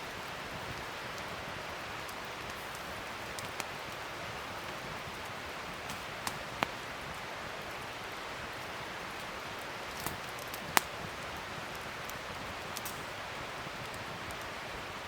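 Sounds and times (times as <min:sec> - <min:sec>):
fire crackling pops: 0:00.0 - 0:15.0
wood fire hissing: 0:00.0 - 0:15.0.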